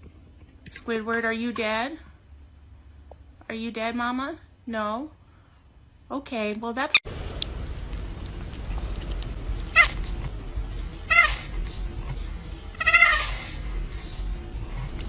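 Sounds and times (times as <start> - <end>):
low rumble: 7.1 - 15.0
cat meowing: 9.6 - 10.2, 11.0 - 11.8, 12.7 - 13.8.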